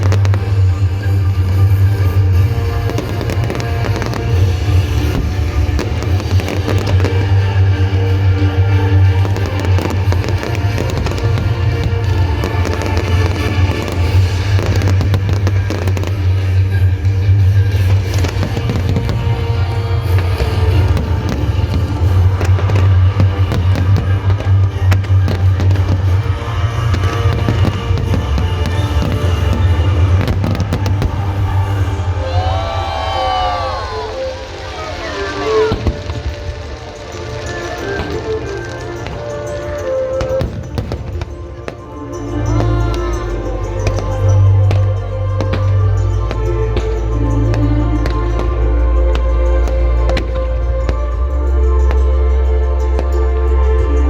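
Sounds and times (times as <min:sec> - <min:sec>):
loud music with heavy bass: 0:00.0 - 0:36.2
fireworks bursting with sharp bangs: 0:00.0 - 0:51.2.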